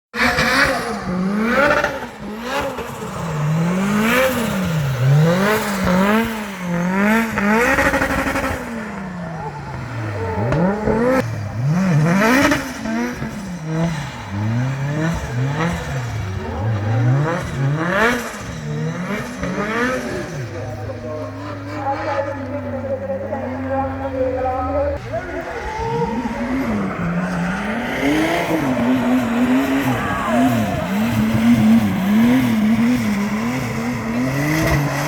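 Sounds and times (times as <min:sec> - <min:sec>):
car engine revving: 0:00.1 - 0:35.0.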